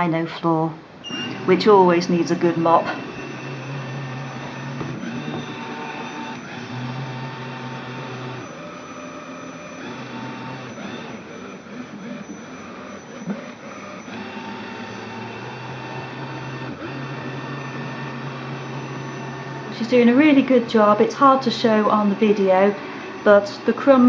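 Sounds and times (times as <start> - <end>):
robot vacuum cleaner whirring: 1.0 - 24.0
low motor hum: 1.2 - 24.0.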